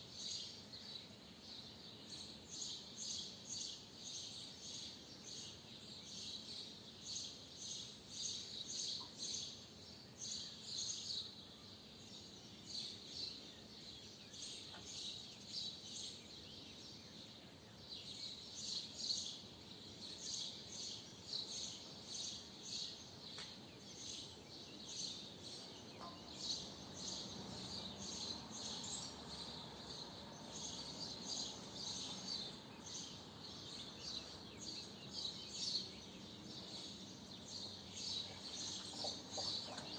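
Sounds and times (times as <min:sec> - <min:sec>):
faint background hum: 0:00.0 - 0:39.9
swallows twittering: 0:12.8 - 0:39.9.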